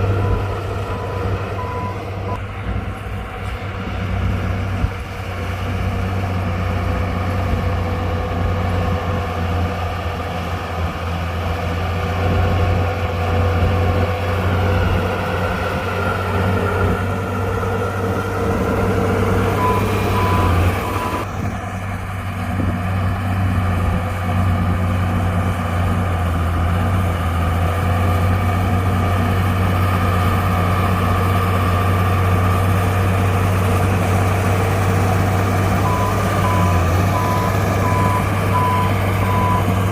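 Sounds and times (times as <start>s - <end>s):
reversing beeper: 0.0s - 2.4s, 19.4s - 21.3s, 35.8s - 39.9s
heavy diesel machinery running: 0.0s - 39.9s.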